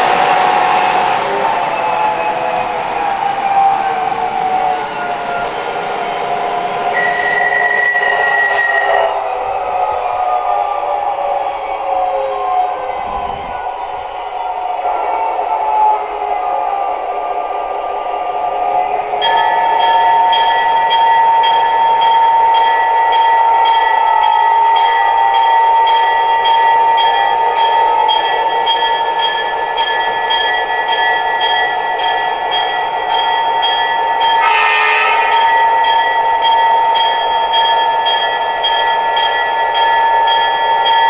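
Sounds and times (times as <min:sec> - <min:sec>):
model train diesel engine sound: 0:00.0 - 0:09.5, 0:24.4 - 0:41.0.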